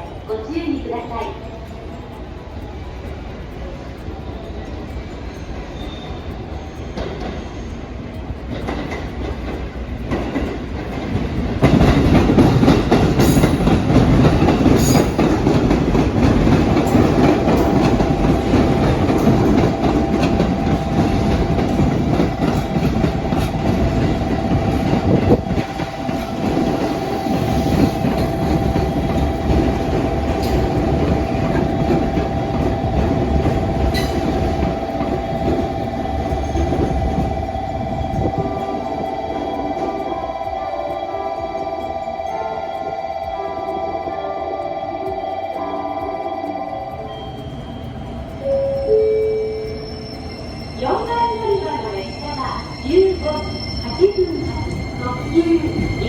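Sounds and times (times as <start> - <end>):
steady high whine: 0.0 - 56.0
train wheels clattering over rails: 1.4 - 43.8.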